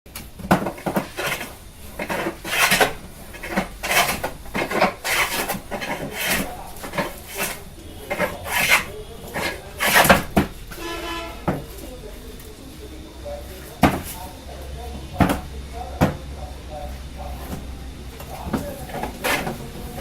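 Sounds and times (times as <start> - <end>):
hand tool rasping on wood: 0.9 - 10.2.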